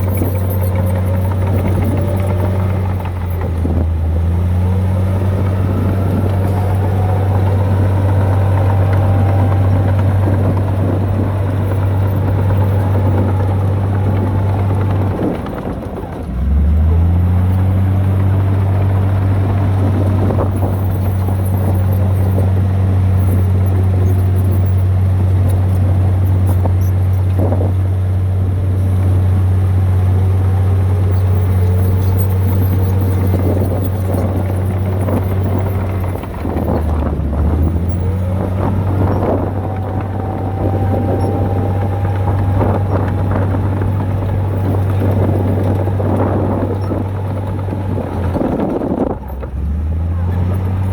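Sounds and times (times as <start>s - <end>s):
heavy diesel engine droning: 0.0s - 50.9s.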